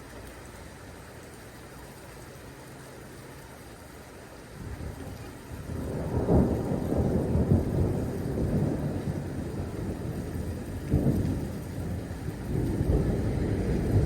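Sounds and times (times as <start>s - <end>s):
rain: 0.0s - 14.0s
thunder rolling: 10.8s - 14.0s.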